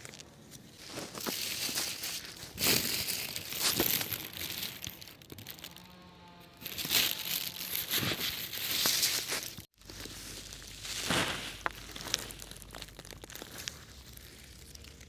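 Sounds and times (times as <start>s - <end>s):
rustling crinkling noise: 0.0s - 15.0s.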